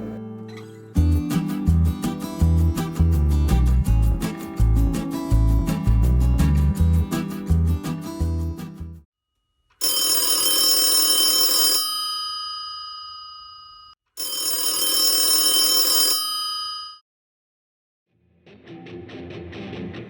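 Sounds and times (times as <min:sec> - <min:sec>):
telephone ringing: 0:09.8 - 0:17.0.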